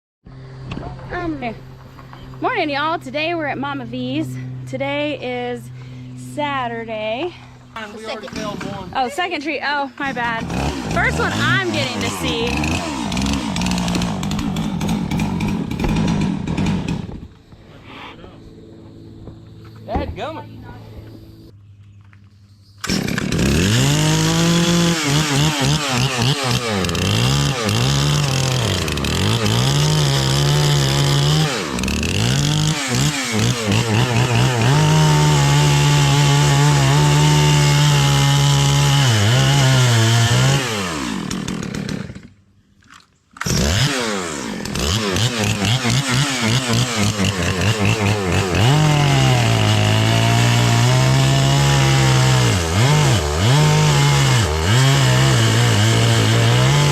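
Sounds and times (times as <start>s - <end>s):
chainsaw engine revving: 7.7s - 17.4s, 22.8s - 42.4s, 43.4s - 56.9s.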